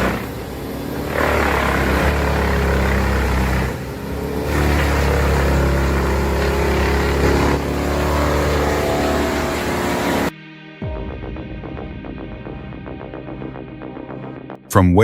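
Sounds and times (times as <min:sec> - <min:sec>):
wood chipper running: 0:00.0 - 0:10.3.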